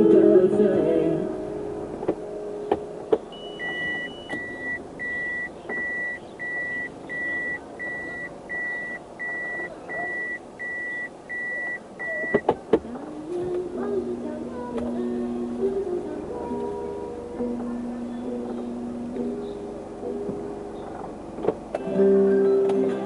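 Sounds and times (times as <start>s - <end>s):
car warning beeper: 3.2s - 12.5s.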